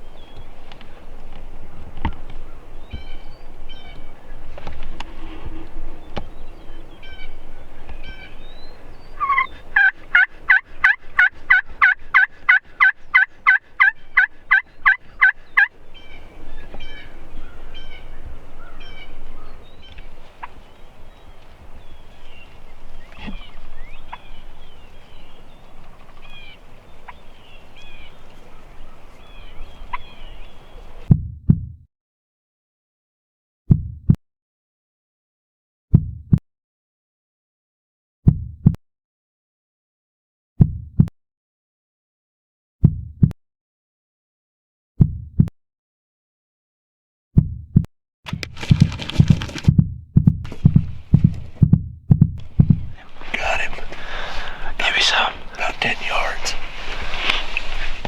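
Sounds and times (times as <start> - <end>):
turkey yelping: 6.5 - 31.1.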